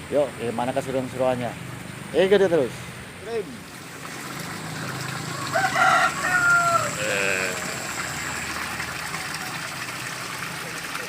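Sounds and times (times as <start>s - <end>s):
running water hiss: 0.0s - 11.0s
rooster crowing: 5.2s - 7.8s.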